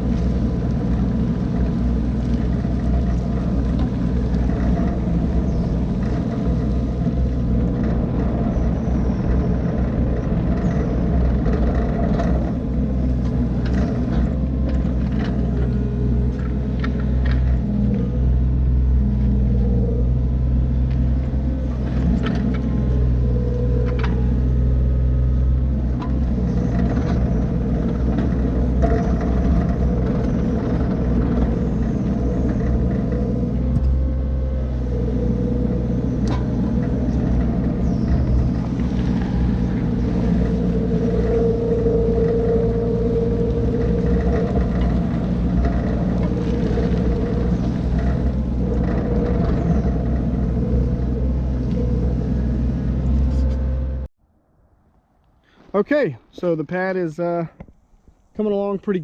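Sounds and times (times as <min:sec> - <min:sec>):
excavator diesel engine running: 0:00.0 - 0:54.1.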